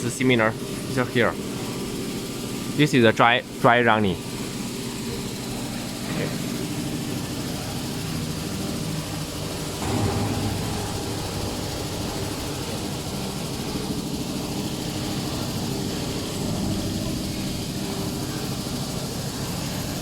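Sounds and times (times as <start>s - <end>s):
machine motors humming: 4.1s - 20.0s.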